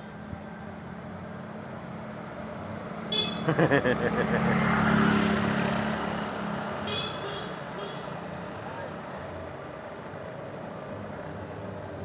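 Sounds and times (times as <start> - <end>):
heavy truck driving past: 3.5 - 6.6.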